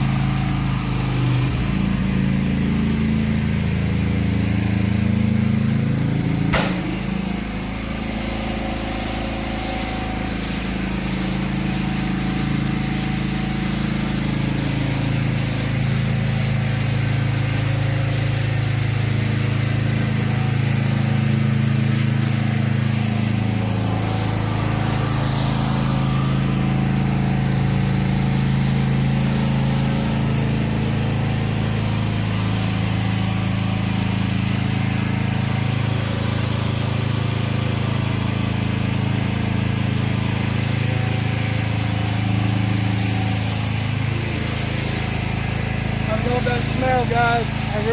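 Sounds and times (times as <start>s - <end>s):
water spraying hiss: 0.0s - 0.6s, 6.5s - 47.9s
pressure washer engine running: 0.0s - 47.9s.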